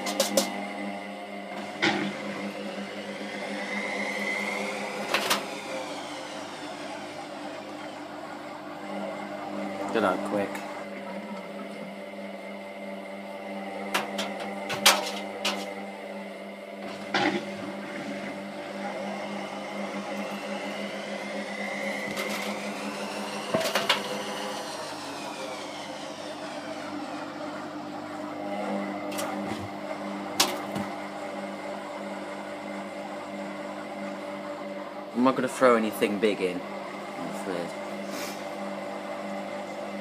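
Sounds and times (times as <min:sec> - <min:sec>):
washing machine drum spinning: 0:13.5 - 0:16.0, 0:16.8 - 0:31.8.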